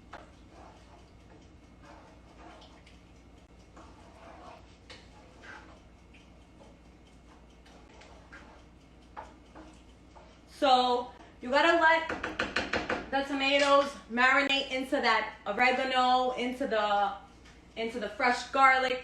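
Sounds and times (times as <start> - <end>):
spoon stirring sauce in a pot: 0.0 - 13.9.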